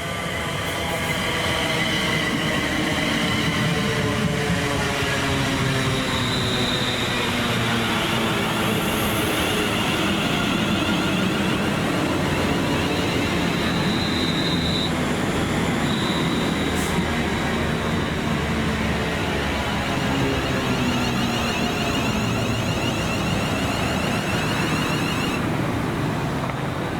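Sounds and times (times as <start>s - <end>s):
train wheels rumbling on track: 0.0s - 26.9s
thin high whine: 7.9s - 16.9s, 19.6s - 25.4s.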